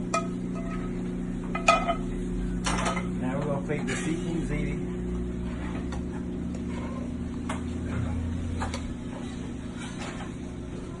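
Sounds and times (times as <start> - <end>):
kitchen equipment humming: 0.0 - 11.0.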